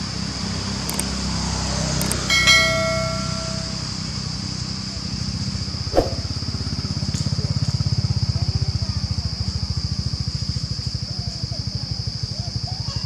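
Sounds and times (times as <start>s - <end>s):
small engine chugging: 0.0s - 13.0s
sharp click: 2.0s - 2.3s.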